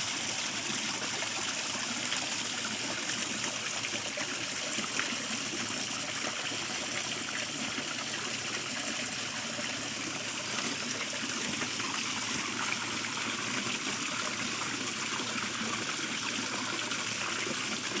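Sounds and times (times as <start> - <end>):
waterfall splashing and trickling: 0.0 - 18.0.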